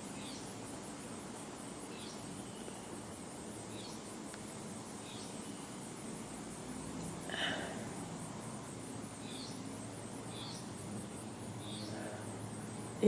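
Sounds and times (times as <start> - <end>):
bird chirping: 5.0 - 5.8, 9.1 - 13.0.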